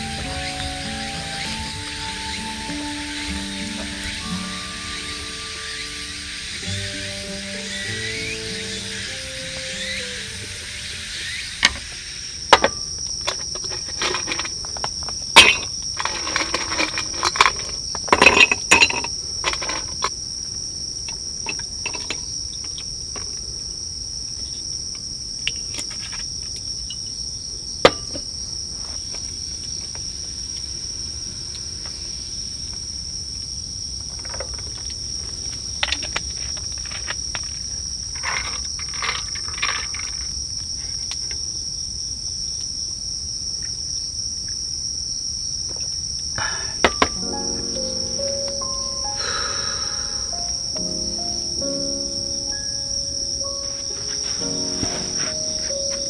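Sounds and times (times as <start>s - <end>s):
crickets chirring: 0.0s - 56.0s
objects clicking and knocking: 12.6s - 20.1s, 21.1s - 23.4s, 34.1s - 40.4s, 46.8s - 47.9s.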